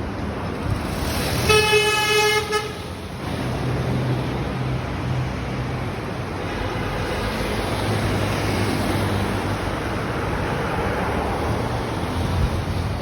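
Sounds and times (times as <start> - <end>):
passing vehicles rushing: 0.0 - 13.0.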